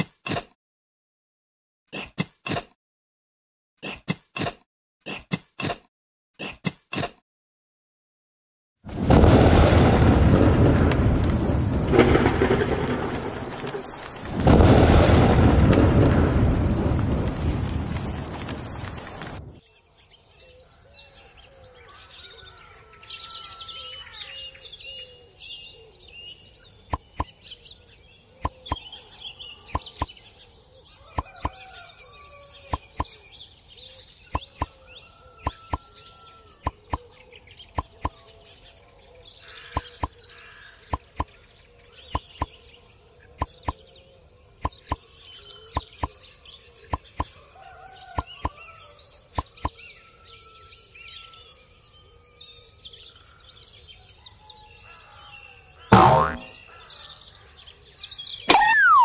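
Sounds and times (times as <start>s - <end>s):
birds chirping and calling: 19.8s - 47.4s, 54.8s - 59.0s.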